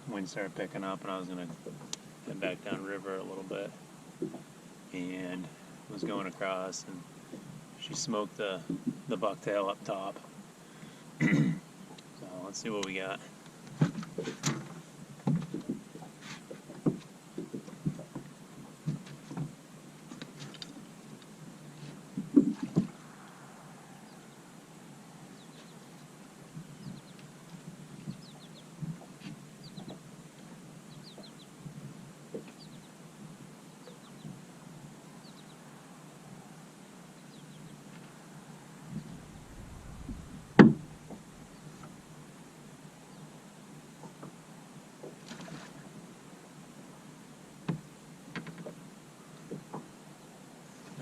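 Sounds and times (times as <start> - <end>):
knocks and clunks against boat: 4.2 - 4.5, 7.3 - 9.1, 13.7 - 20.7, 22.1 - 23.0, 47.6 - 48.8
loud thump: 39.0 - 42.0.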